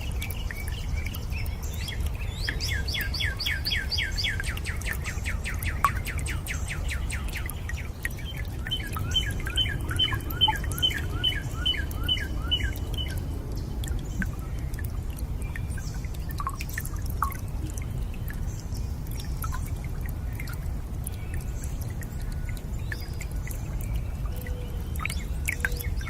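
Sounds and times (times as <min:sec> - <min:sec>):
low rush of water: 0:00.0 - 0:26.0
water drops dripping: 0:00.0 - 0:26.0
bird chirping: 0:01.8 - 0:13.2.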